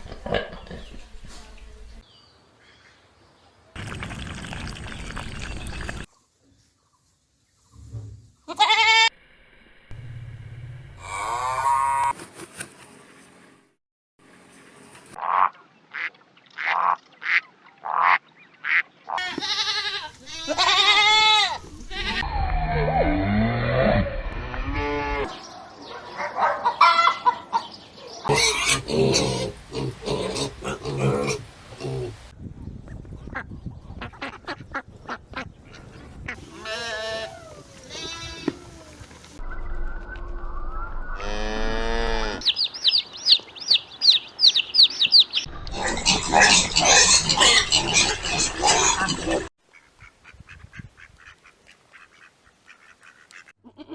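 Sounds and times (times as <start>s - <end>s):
sheep bleating: 8.5s - 9.1s, 19.2s - 22.2s, 36.4s - 38.8s
low hum: 9.2s - 11.5s.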